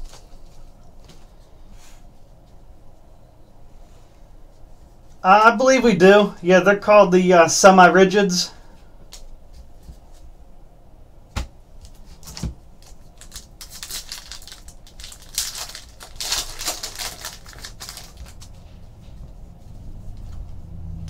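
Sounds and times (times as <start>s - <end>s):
card pack wrappers crinkling: 11.9s - 18.6s.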